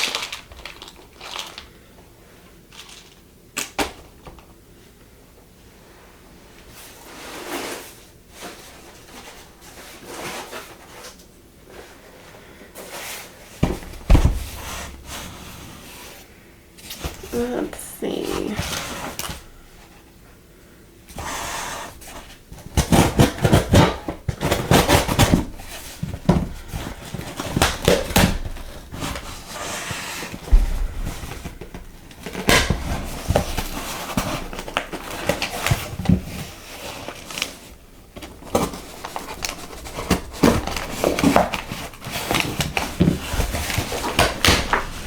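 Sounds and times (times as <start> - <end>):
plastic items clicking and clattering: 0.0 - 1.8, 2.7 - 4.5, 22.6 - 45.0
packaging crinkling and rustling: 0.0 - 2.0, 2.7 - 4.2, 22.0 - 45.0.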